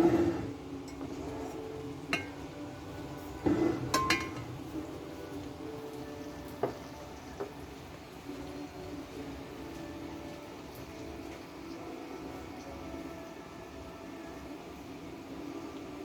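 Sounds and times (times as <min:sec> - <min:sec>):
glass and metal clinking: 0:00.9 - 0:02.5, 0:03.4 - 0:04.6.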